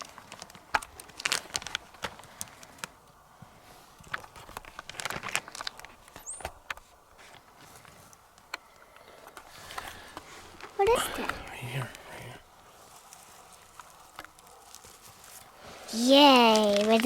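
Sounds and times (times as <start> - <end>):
rustling in undergrowth: 0.0 - 8.3, 9.2 - 17.0
footsteps in undergrowth: 12.5 - 17.0.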